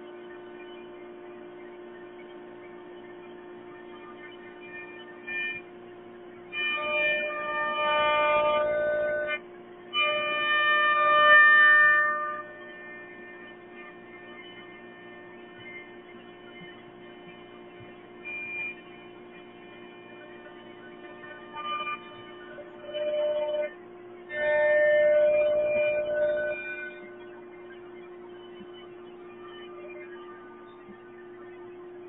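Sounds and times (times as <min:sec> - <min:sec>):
cnc router humming: 0:00.0 - 0:32.0
whining tones changing pitch: 0:00.0 - 0:32.0.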